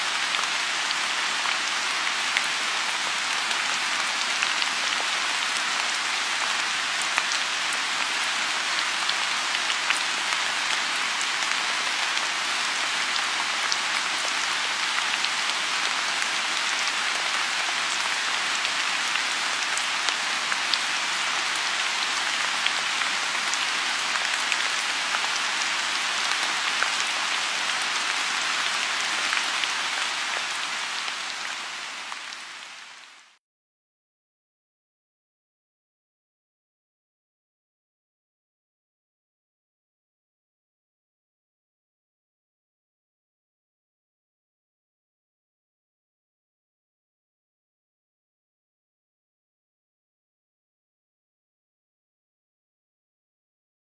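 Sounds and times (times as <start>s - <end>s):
rain falling on pond: 0.0s - 33.4s.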